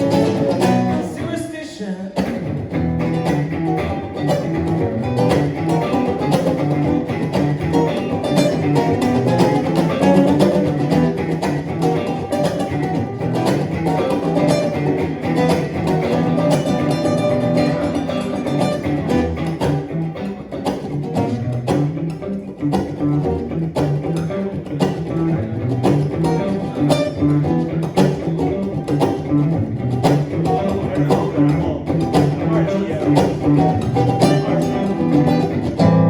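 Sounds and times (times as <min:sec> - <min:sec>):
acoustic and electric guitars playing: 0:00.0 - 0:36.0.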